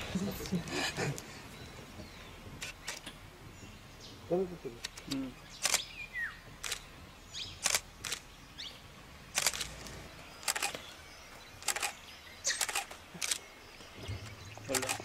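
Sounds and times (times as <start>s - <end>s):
sharp clicks: 2.6s - 3.2s, 4.8s - 5.9s, 6.6s - 6.8s, 7.6s - 8.2s, 9.3s - 10.8s, 11.6s - 13.4s, 14.2s - 15.0s.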